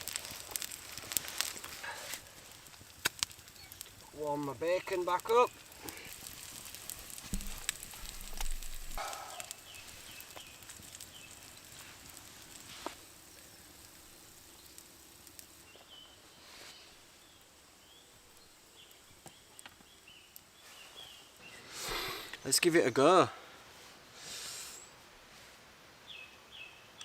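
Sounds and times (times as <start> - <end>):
bacon sizzling in pan: 0.0 - 20.3
campfire crackling: 0.0 - 27.0.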